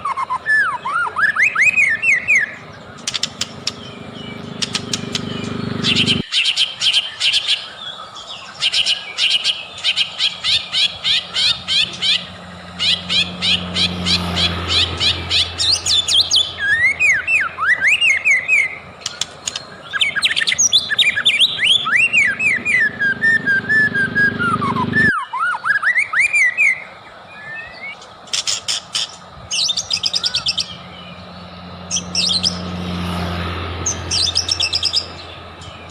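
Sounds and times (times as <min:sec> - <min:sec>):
bird whistled notes: 0:00.0 - 0:03.9, 0:08.6 - 0:30.8
bird chattering notes: 0:00.8 - 0:07.4, 0:08.7 - 0:25.1.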